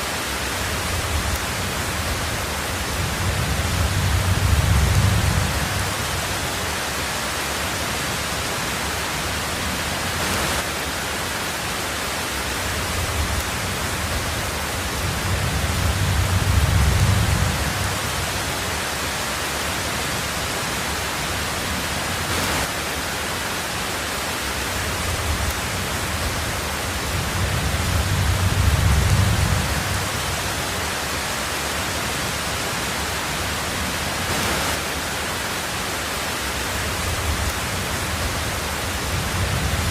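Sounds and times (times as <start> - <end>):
heavy rain on a tin roof: 0.0 - 39.9
low thunder rumbles: 0.8 - 6.6, 12.9 - 18.6, 24.8 - 30.8, 36.8 - 39.9.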